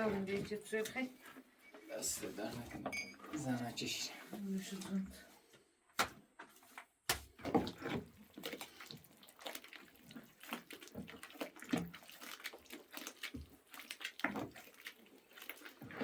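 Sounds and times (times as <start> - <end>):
water splashing: 7.6 - 16.0.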